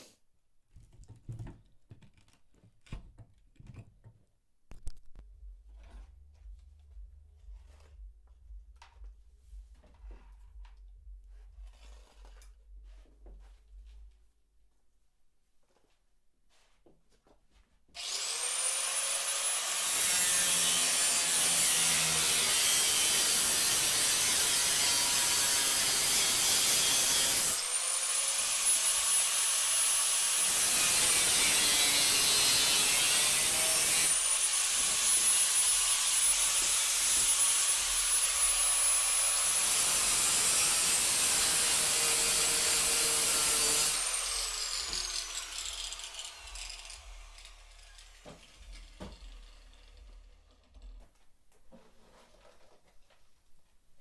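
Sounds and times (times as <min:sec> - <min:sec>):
angle grinder cutting bolts: 0:18.0 - 0:51.0.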